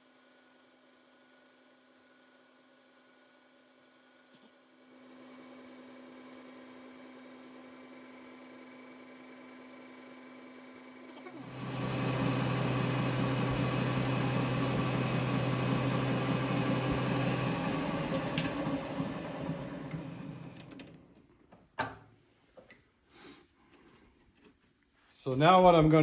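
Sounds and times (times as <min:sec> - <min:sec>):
metal lathe motor humming: 0:11.1 - 0:21.0.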